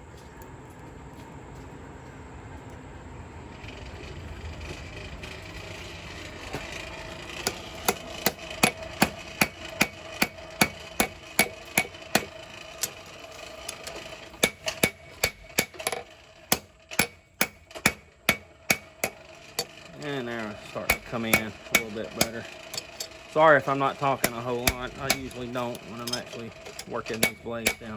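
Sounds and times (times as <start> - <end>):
steady background noise: 0.0 - 27.9
hammer ringing on an anvil: 7.4 - 12.3, 14.4 - 19.7, 20.5 - 27.9.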